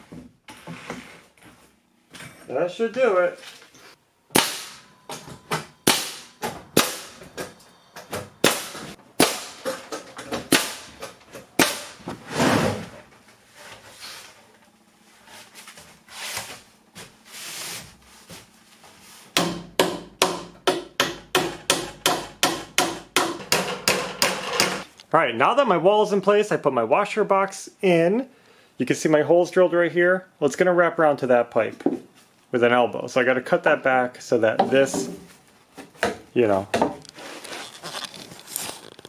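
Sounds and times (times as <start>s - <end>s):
hammer driving nails into wood: 8.1s - 12.0s, 19.4s - 24.8s.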